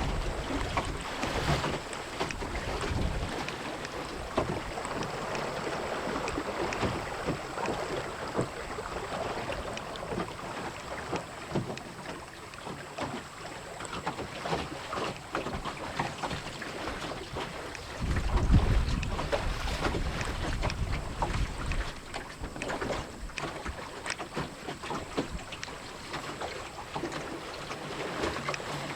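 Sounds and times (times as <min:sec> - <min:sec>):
wind buffeting microphone: 0:00.0 - 0:10.5, 0:17.4 - 0:23.4
water splashing against boat hull: 0:00.0 - 0:28.9.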